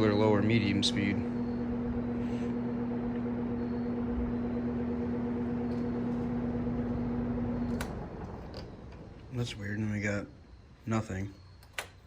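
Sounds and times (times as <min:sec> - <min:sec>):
fan motor humming: 0:00.0 - 0:11.9.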